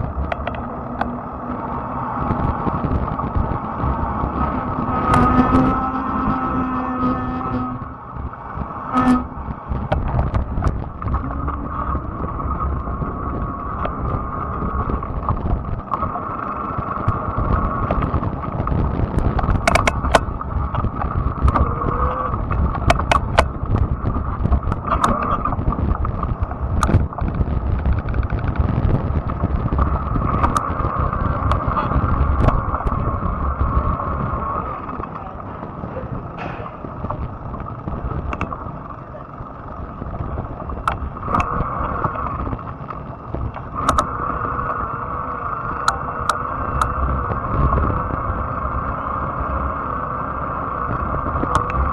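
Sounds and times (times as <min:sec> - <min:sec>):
sharp clicks and knocks: 0:00.0 - 0:01.2, 0:09.0 - 0:11.8, 0:17.0 - 0:33.0, 0:36.4 - 0:38.7, 0:40.3 - 0:42.7, 0:43.3 - 0:44.2, 0:45.8 - 0:47.0, 0:51.4 - 0:51.9
electric motor hum: 0:00.0 - 0:35.1
bike tyres rumbling: 0:00.0 - 0:51.9
wind on microphone: 0:00.0 - 0:51.9.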